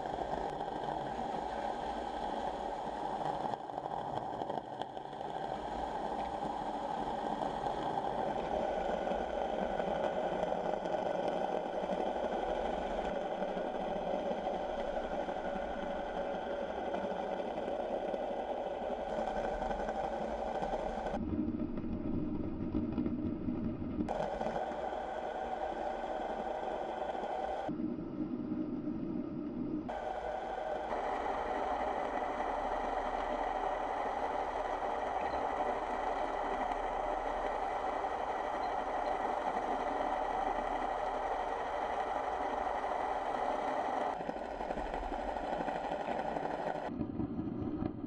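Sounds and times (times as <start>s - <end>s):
mechanical hum with hiss: 0.0s - 22.5s, 24.1s - 48.0s.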